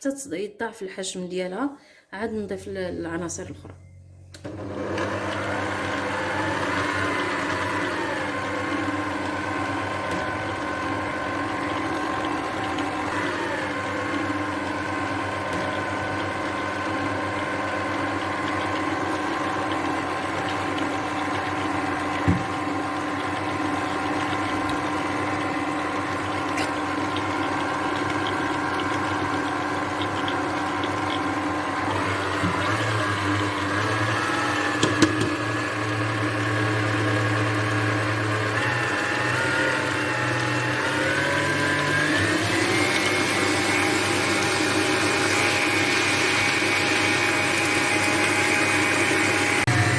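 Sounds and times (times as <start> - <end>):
electric mixer whining: 4.4 - 49.9.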